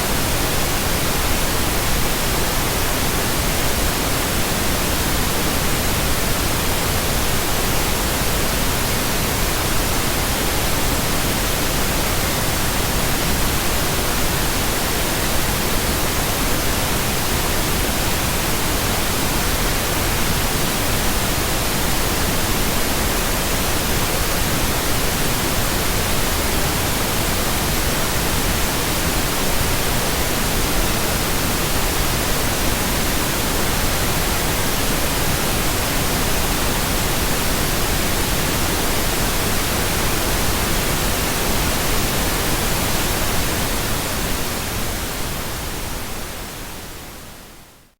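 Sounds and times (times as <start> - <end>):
pink noise hiss: 0.0 - 47.9.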